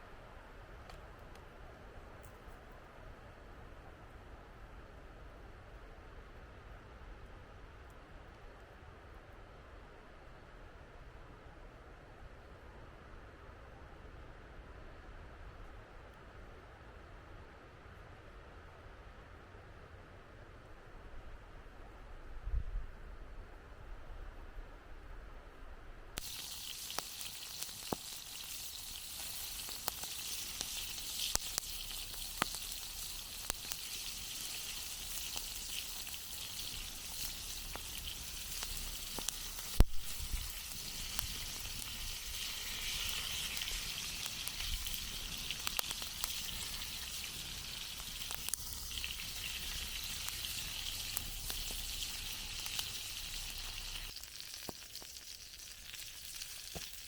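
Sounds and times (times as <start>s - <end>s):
loud fire snap: 26.2s - 55.2s
campfire crackling and popping: 26.2s - 57.0s.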